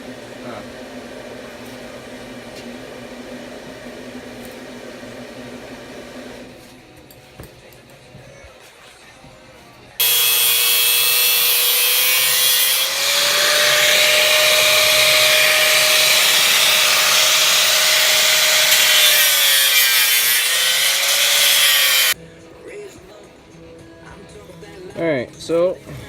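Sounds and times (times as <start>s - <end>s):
power tool cutting sheet metal: 10.0s - 22.2s.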